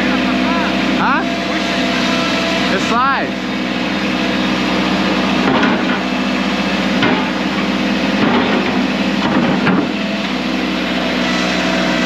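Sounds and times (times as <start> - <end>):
construction machine engine running: 0.0 - 12.0
metallic knocks and clanks: 5.4 - 6.1, 6.9 - 10.0.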